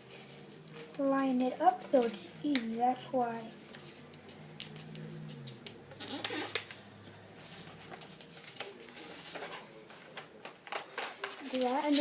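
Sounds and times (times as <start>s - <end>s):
paper crinkling and rustling: 3.6s - 12.0s.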